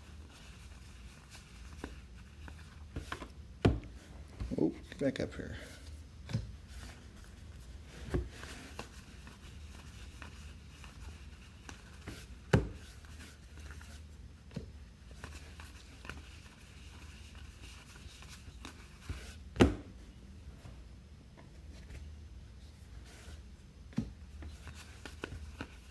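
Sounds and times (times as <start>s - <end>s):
low steady hum: 0.0s - 25.9s.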